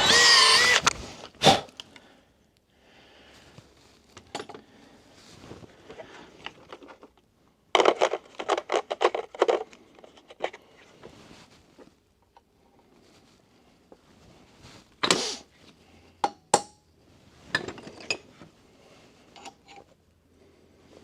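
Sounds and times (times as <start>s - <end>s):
clicks and handling noise: 5.8s - 12.5s.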